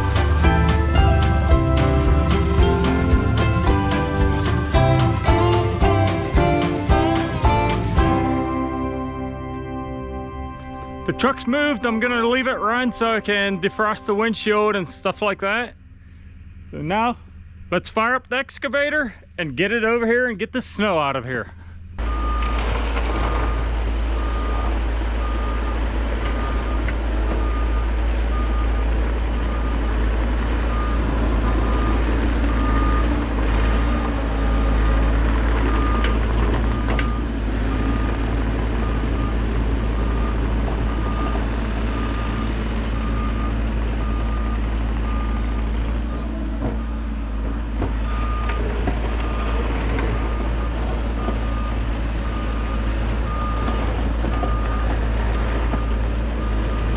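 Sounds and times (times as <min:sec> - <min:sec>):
excavator diesel engine rumble: 0:00.0 - 0:17.7, 0:21.4 - 0:56.9
travel alarm beeping: 0:30.7 - 0:47.0.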